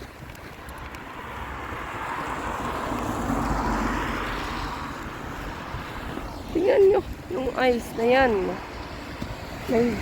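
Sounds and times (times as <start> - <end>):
vehicle driving past: 0.9 - 6.5.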